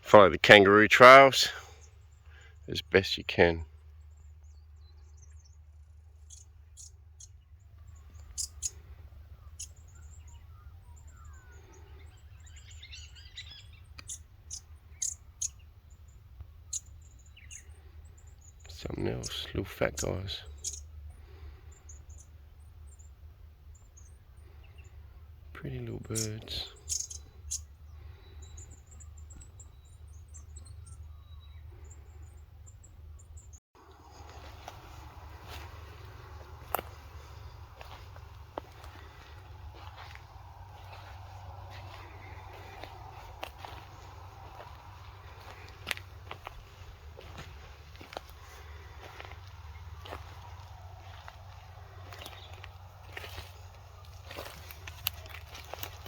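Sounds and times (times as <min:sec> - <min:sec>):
small birds chirping: 0:00.0 - 0:56.0
high bird twittering: 0:06.2 - 0:19.3, 0:20.0 - 0:21.2, 0:25.9 - 0:56.0
low steady rumble: 0:32.2 - 0:55.3.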